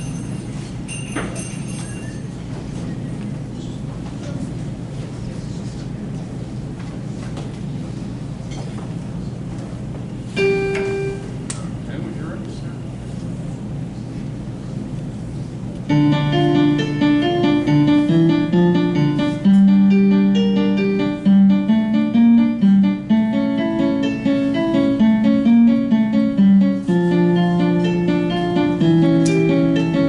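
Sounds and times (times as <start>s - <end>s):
solo piano piece: 15.9s - 30.0s.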